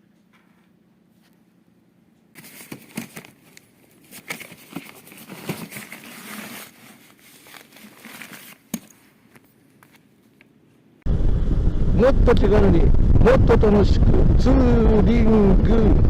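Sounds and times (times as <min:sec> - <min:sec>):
rustling and crinkling handling: 0:02.3 - 0:10.8.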